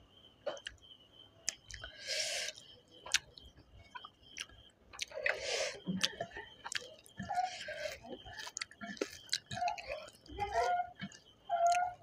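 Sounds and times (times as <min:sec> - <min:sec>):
chewing with wet mouth clicks: 0:00.5 - 0:00.8, 0:01.4 - 0:12.0.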